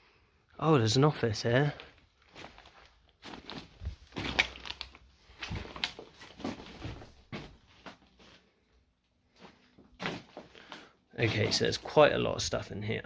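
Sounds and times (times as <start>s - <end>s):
footsteps crunching over debris: 1.7s - 8.5s, 9.3s - 12.0s.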